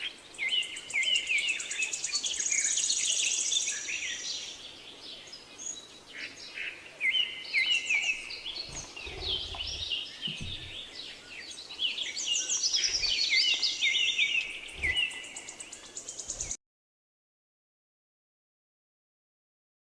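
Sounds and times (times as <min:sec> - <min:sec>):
budgerigars chirping and chattering: 0:07.1 - 0:16.6.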